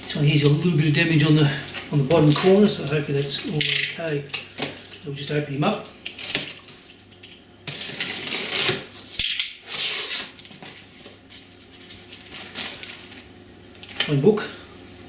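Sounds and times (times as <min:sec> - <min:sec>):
cardboard rustling and scraping: 0:07.7 - 0:14.0.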